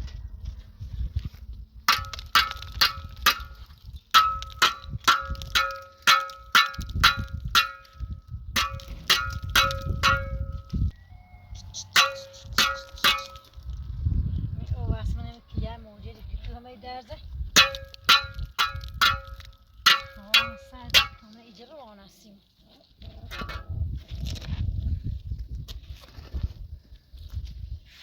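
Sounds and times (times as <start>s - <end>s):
hammering on metal: 4.2s - 8.0s, 8.6s - 10.7s, 12.0s - 13.5s, 17.6s - 21.2s.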